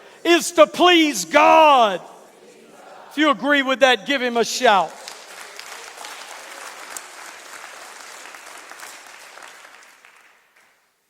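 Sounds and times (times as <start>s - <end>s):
congregation clapping: 3.1s - 11.0s.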